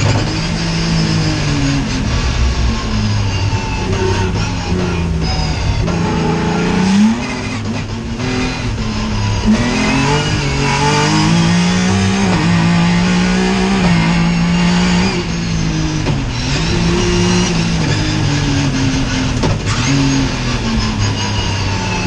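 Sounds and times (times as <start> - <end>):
racing car engine revving: 0.0 - 22.0.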